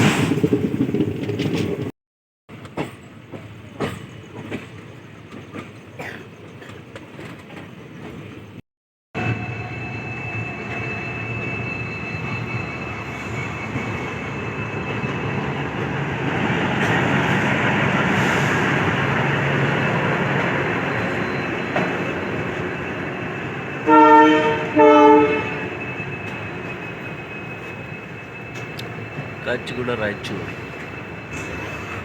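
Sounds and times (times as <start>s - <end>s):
train wheels rumbling: 0.0s - 1.9s, 9.2s - 32.0s.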